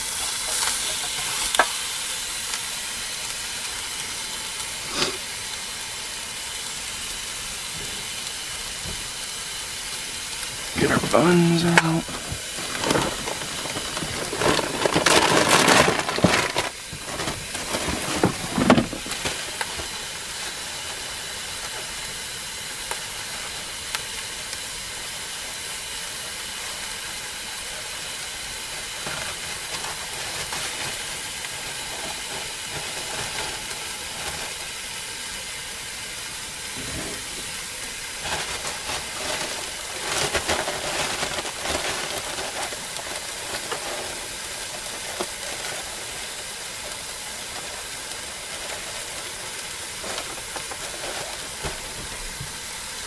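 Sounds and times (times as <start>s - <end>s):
meat patty sizzling in a pot: 0.0s - 53.0s
rustling and handling noise: 10.3s - 24.3s, 26.7s - 35.5s, 36.2s - 53.0s.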